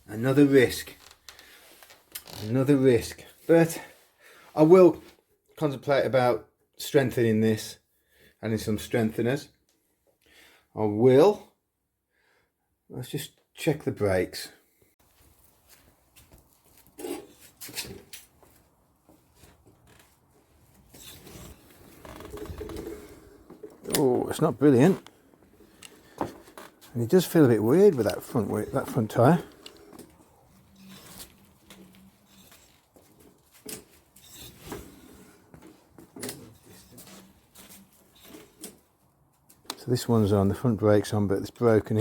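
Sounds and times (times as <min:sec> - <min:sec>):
scraping and rubbing noises: 0:15.2 - 0:38.8.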